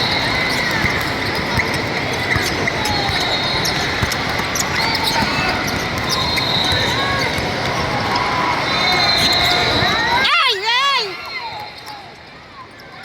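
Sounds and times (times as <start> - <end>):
sneaker squeaks: 0.0 - 7.8, 8.6 - 10.3
hubbub in hall: 0.0 - 13.0.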